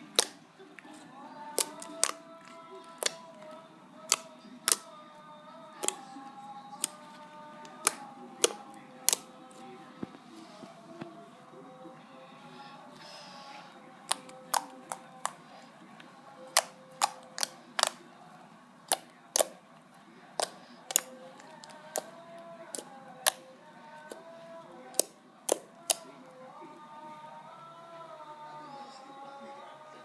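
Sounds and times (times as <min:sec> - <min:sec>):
slime clicking pops: 0:16.6 - 0:18.0, 0:20.4 - 0:21.1, 0:25.0 - 0:26.0.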